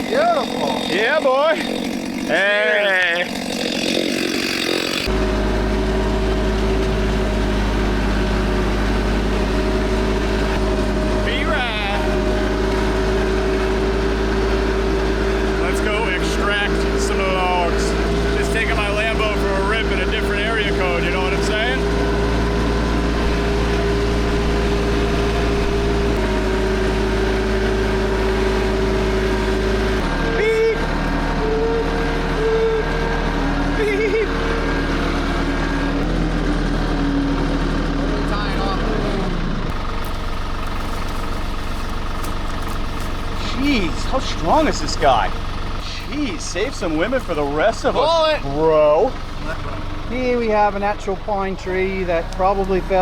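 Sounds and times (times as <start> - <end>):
vehicle engine idling: 0.0 - 53.0.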